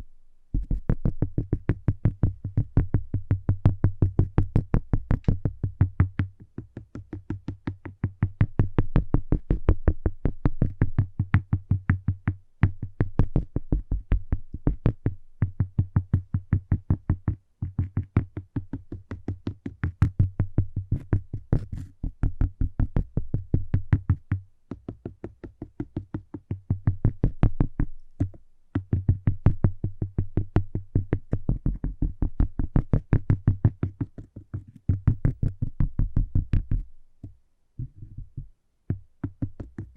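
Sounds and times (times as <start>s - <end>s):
rapid tapping on cork: 0.5s - 39.9s.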